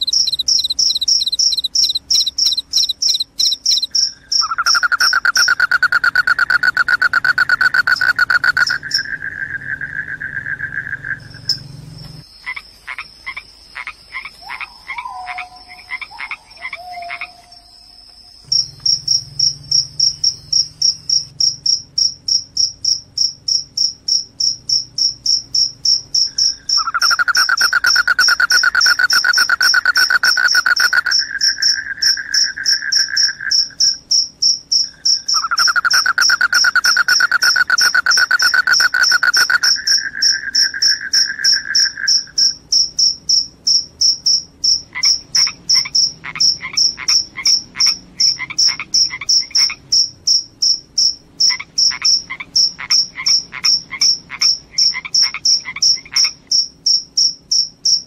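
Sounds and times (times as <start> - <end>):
short croaking calls: 0.0 - 17.6, 25.9 - 34.0, 34.8 - 42.6, 44.8 - 50.1, 51.4 - 56.5
crickets chirping: 0.0 - 58.0.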